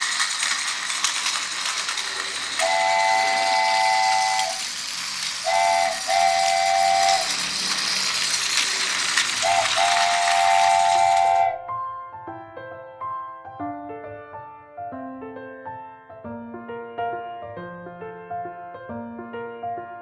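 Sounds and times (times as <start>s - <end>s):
rattling clicks: 0.0s - 11.6s
steam hiss: 0.0s - 11.6s
steam locomotive whistle: 0.0s - 11.7s.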